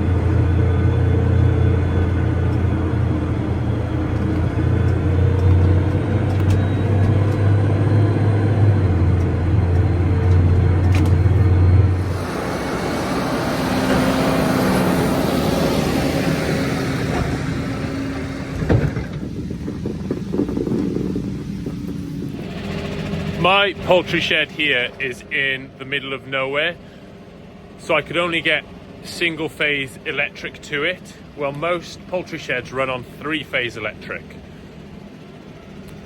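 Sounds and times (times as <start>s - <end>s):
engine running with low rumble: 0.0s - 36.0s
knocks: 17.1s - 22.0s.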